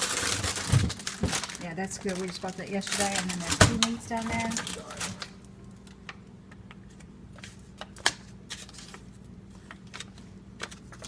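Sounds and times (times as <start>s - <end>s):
food packages rustling and clicking: 0.0s - 6.0s
steady low hum: 0.0s - 11.0s.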